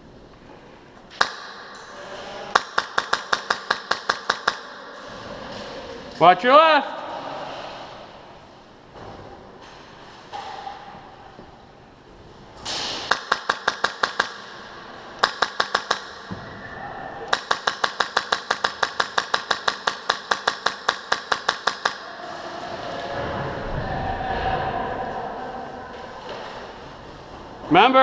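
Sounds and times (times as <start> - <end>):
airsoft gun rapid shots: 2.6 - 4.8, 13.0 - 14.6, 15.2 - 16.2, 17.3 - 22.0.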